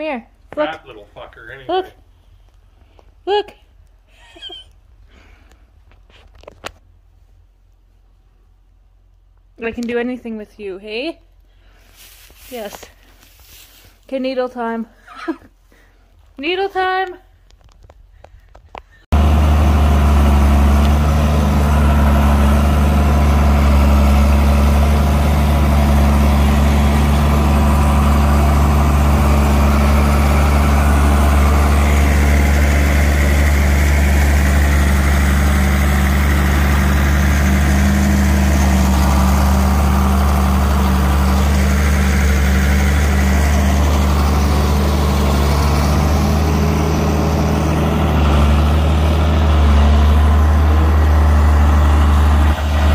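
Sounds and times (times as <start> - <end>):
large vehicle engine humming: 19.0 - 52.9.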